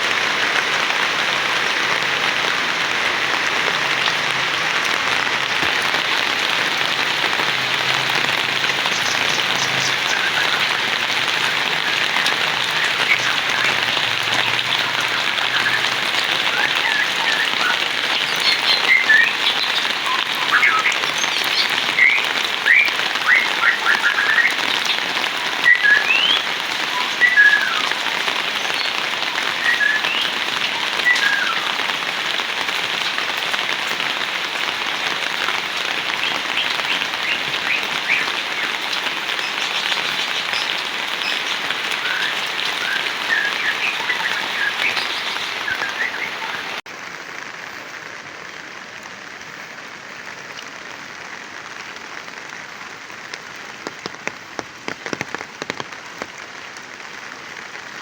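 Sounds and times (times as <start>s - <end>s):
heavy rain: 0.0s - 58.0s
high chirping calls: 7.2s - 28.0s, 36.2s - 46.8s.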